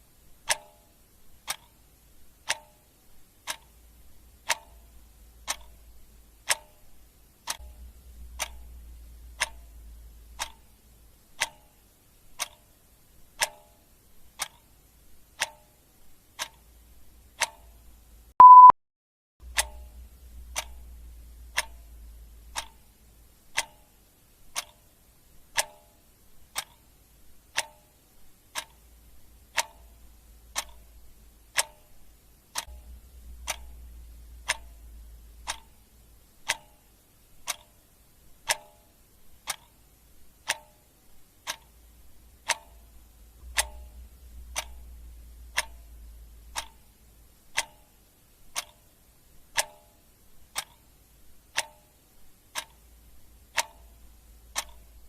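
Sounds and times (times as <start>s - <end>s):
clock ticking: 0.3s - 18.7s, 19.4s - 55.0s
short high beep: 18.4s - 18.8s.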